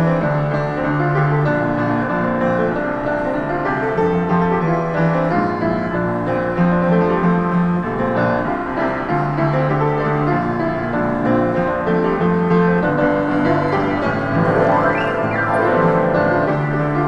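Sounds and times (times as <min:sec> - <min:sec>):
piano playing: 0:07.4 - 0:17.0.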